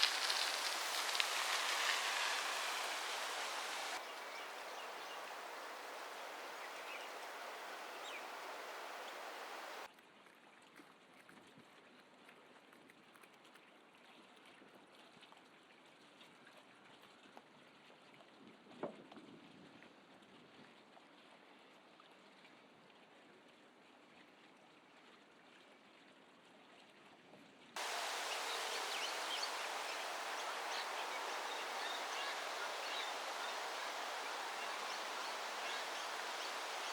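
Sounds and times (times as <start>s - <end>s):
small ticks: 0.0s - 3.4s
outdoor hiss: 0.0s - 9.9s, 27.8s - 36.9s.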